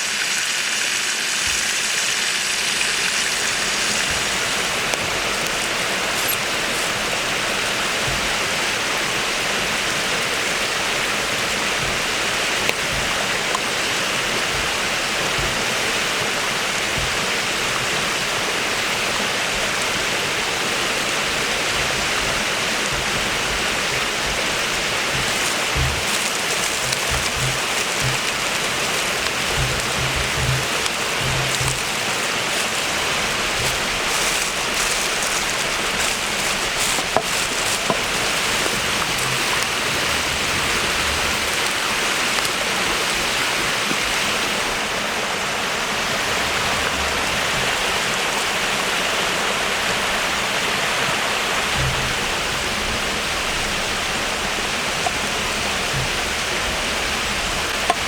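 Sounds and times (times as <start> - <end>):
food sizzling in hot fat: 0.0 - 9.0, 10.8 - 42.6.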